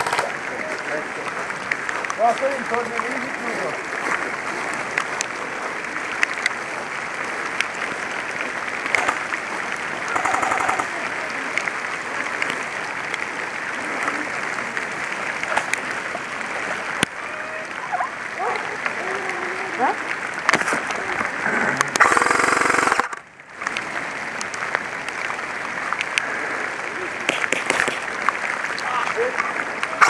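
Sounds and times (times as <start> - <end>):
rain patter: 0.0 - 30.0
airsoft rifle full-auto burst: 22.0 - 23.2.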